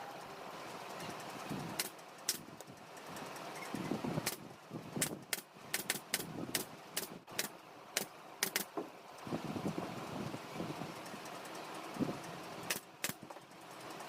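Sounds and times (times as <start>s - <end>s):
sharp clicks: 1.7s - 8.8s, 11.0s - 14.0s.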